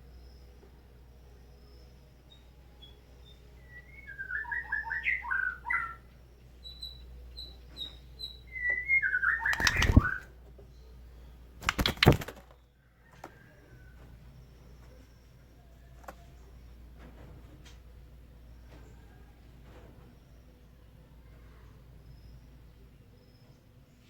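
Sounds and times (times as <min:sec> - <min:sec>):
bird singing warbled phrases: 0:02.8 - 0:12.7
wing flapping: 0:09.2 - 0:10.3, 0:11.6 - 0:13.4.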